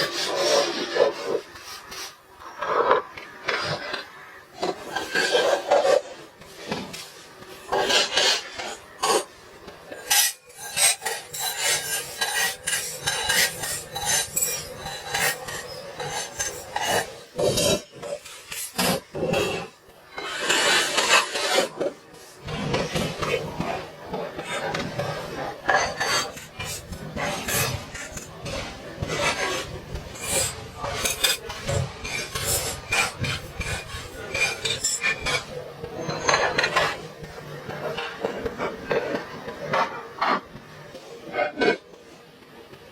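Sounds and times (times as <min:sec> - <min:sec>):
metal parts scraping: 0:09.9 - 0:21.9, 0:30.2 - 0:36.9.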